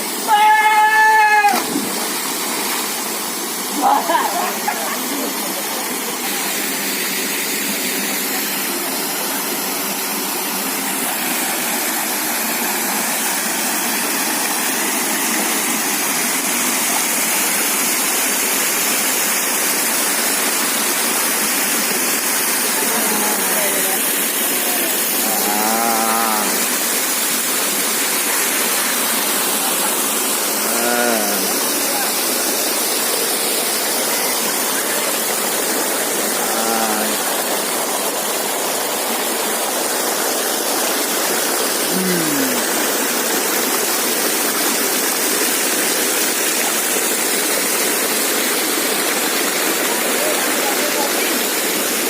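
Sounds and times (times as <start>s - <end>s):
waterfall pouring into pool: 0.0s - 52.0s
drawn-out low calls: 25.1s - 26.8s.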